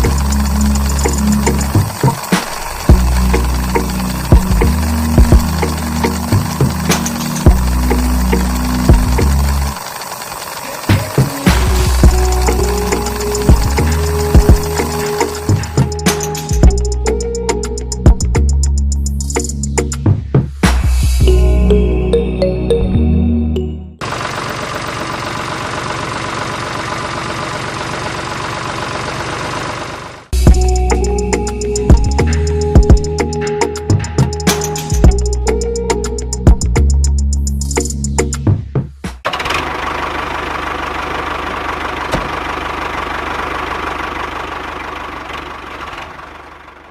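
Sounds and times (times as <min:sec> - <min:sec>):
small motor rattling: 0:00.0 - 0:17.8, 0:24.0 - 0:32.4, 0:39.3 - 0:46.9
small engine idling: 0:00.0 - 0:19.5, 0:24.0 - 0:37.2, 0:39.2 - 0:46.9.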